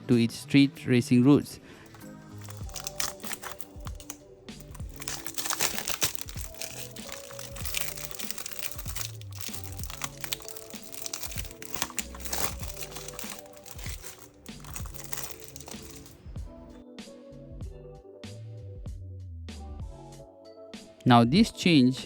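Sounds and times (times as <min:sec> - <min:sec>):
plastic packaging crinkling: 0:01.9 - 0:16.2
background music with steady beat: 0:01.9 - 0:22.0.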